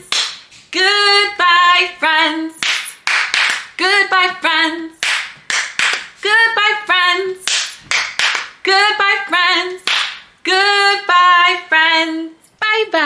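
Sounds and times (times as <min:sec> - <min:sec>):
woman singing: 0:00.0 - 0:05.2, 0:06.1 - 0:13.0
hand claps: 0:00.1 - 0:00.6, 0:02.6 - 0:03.9, 0:05.0 - 0:06.2, 0:07.4 - 0:08.8, 0:09.8 - 0:10.3.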